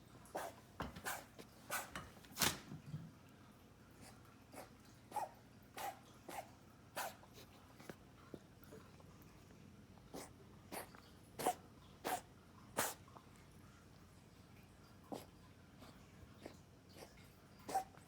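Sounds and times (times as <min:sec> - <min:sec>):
dog coughing: 0:00.3 - 0:02.0, 0:04.5 - 0:07.4, 0:10.1 - 0:13.0, 0:15.1 - 0:15.3, 0:16.4 - 0:18.0.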